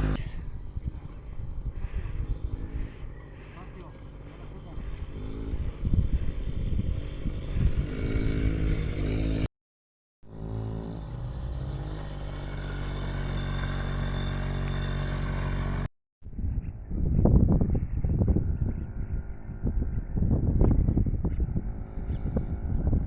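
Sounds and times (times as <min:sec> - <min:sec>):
dirt bike engine revving: 0:00.0 - 0:09.5, 0:10.3 - 0:15.9.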